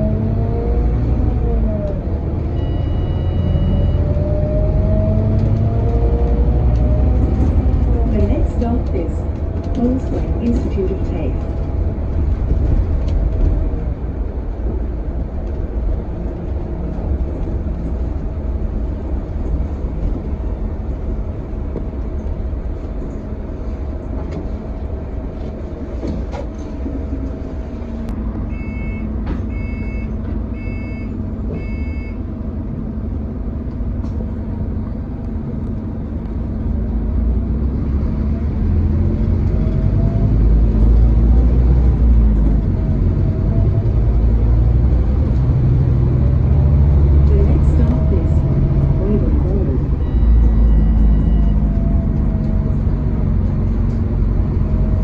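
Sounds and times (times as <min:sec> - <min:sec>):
bus engine running: 0:00.0 - 0:55.0
short electronic beeps: 0:02.6 - 0:04.2, 0:28.5 - 0:32.2, 0:49.9 - 0:51.7.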